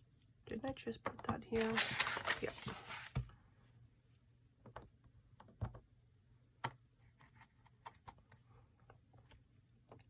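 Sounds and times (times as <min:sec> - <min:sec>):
paper being handled: 0:01.5 - 0:03.2.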